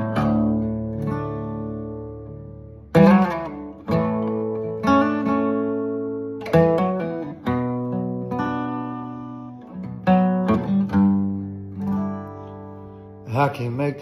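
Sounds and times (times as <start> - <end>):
acoustic guitar chords strummed: 0.0 - 14.0.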